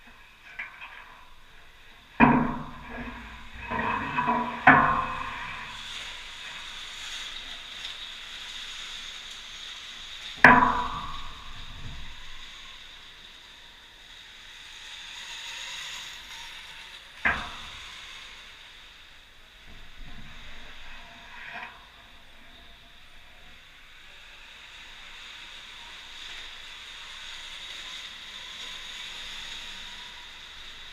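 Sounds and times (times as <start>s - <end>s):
steady hiss: 0.0s - 30.9s
sharp ringing knocks: 10.4s - 12.1s.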